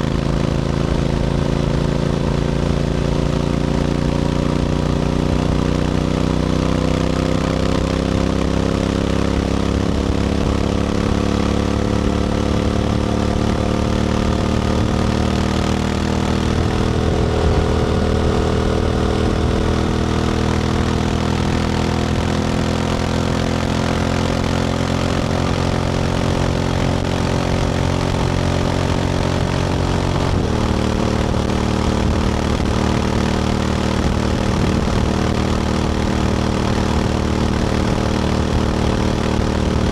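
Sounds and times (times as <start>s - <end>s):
motorcycle engine pulling: 6.8s - 39.9s
wind noise: 16.0s - 21.6s.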